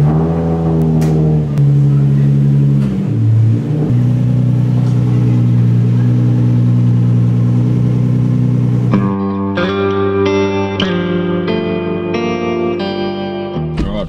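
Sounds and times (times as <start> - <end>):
car engine running loud: 0.0 - 9.2.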